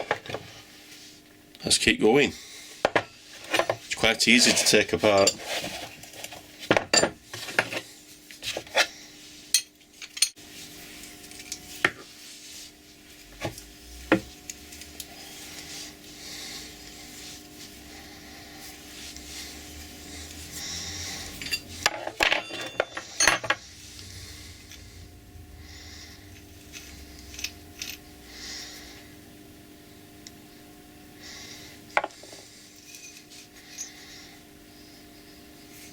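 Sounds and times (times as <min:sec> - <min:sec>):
faint steady hum: 0:00.0 - 0:35.9
metal tools clinking and scraping: 0:02.9 - 0:08.9, 0:09.5 - 0:10.4, 0:11.0 - 0:12.0, 0:21.2 - 0:23.8, 0:26.1 - 0:28.2, 0:32.0 - 0:34.0.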